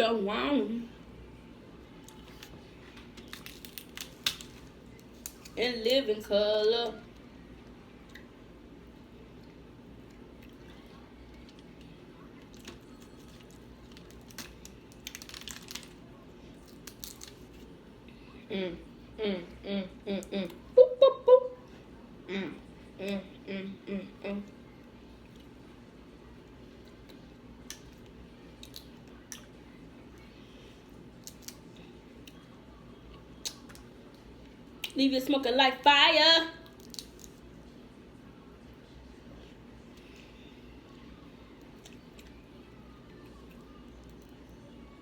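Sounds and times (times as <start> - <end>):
crab shell cracking: 3.2 - 5.6, 12.6 - 16.0, 16.6 - 17.5, 31.2 - 31.6, 36.6 - 37.4.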